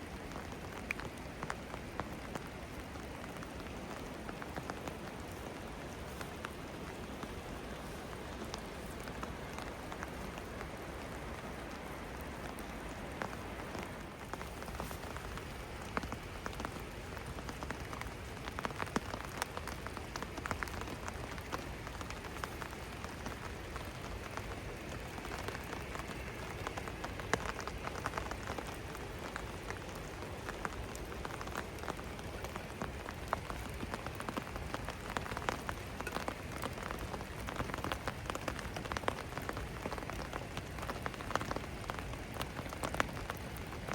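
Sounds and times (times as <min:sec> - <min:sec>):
rain hiss: 0:00.0 - 0:43.9
raindrops ticking on hard surfaces: 0:00.0 - 0:43.9.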